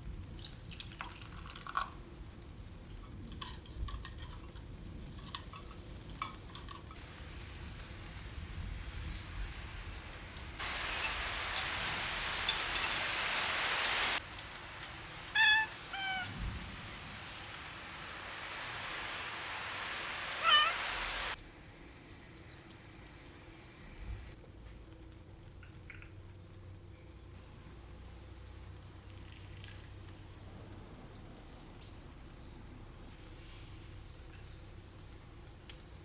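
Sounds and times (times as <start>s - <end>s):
steady rain hiss: 0.0s - 36.0s
short high animal calls: 14.6s - 21.4s.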